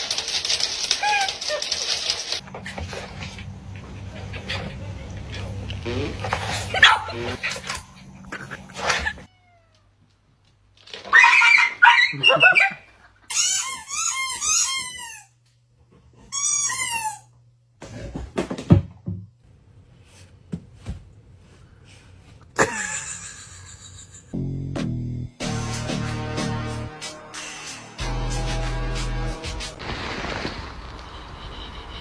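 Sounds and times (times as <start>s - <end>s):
music: 24.4s - 29.8s.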